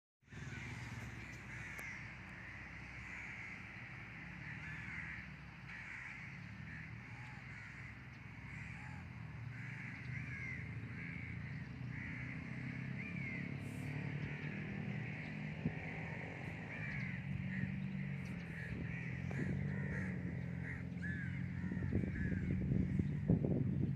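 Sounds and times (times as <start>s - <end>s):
birds calling: 0.3s - 23.9s
steady low rumble: 16.5s - 23.9s.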